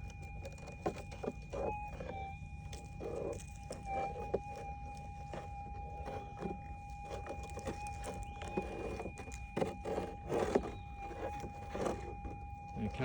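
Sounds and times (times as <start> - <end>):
coil scuffing over rocky ground: 2.8 - 12.3.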